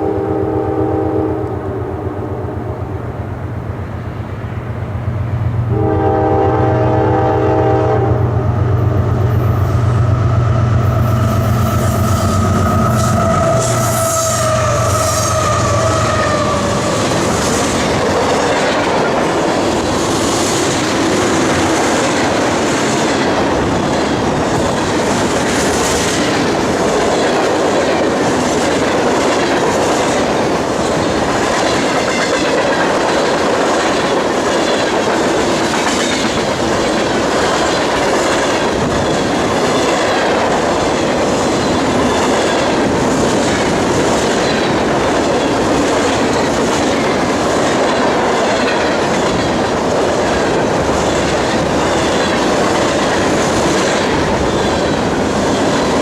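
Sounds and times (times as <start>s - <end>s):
train wheels clacking over rail joints: 12.2s - 56.0s.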